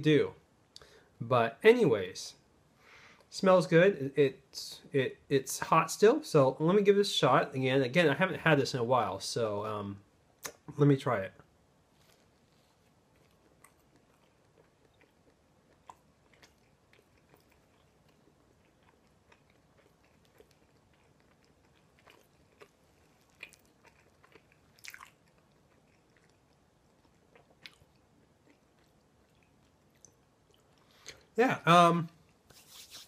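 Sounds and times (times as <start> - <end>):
chewing with mouth clicks: 12.0 - 31.3.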